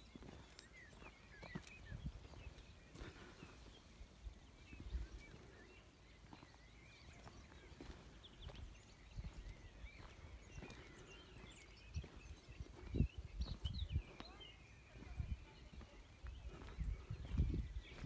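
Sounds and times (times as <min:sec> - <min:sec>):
small birds chirping: 0:00.0 - 0:18.0
dull low thumps: 0:16.5 - 0:18.0.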